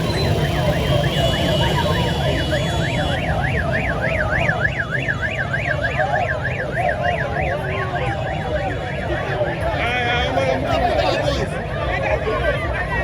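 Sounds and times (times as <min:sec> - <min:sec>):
fast-warbling siren: 0:00.0 - 0:09.7
traffic engine rumble: 0:00.0 - 0:13.0.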